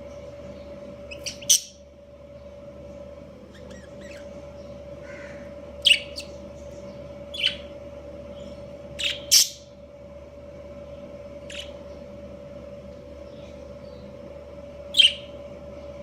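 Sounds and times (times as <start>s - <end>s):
steady hum: 0.0s - 16.0s
budgies chirping and squawking: 1.1s - 1.8s, 3.5s - 4.4s, 5.0s - 6.5s, 7.3s - 7.8s, 9.0s - 9.6s, 11.4s - 11.8s, 15.0s - 15.3s.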